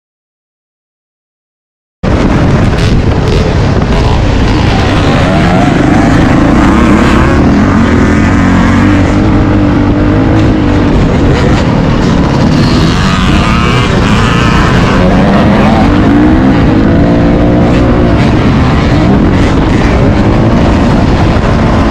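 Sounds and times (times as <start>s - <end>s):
dirt bike engine revving: 2.1s - 21.9s.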